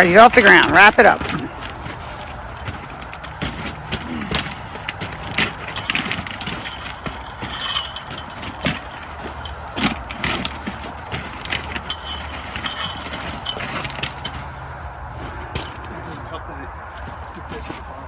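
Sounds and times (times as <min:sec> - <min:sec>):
metal clanking: 0:00.0 - 0:18.0.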